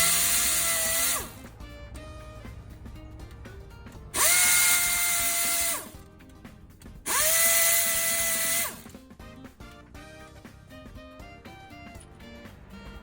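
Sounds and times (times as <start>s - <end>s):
power tool motor whining: 0.0s - 1.5s, 4.1s - 6.0s, 7.1s - 8.9s
background music: 0.0s - 13.0s.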